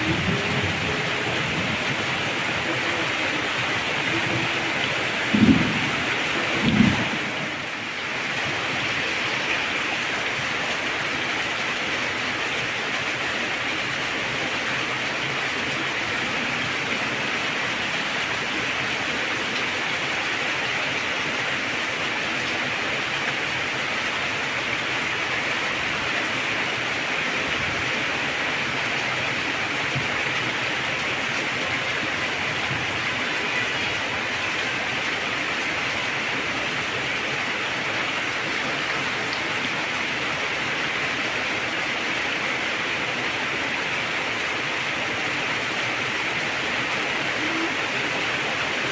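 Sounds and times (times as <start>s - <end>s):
heavy rain: 0.0s - 48.9s.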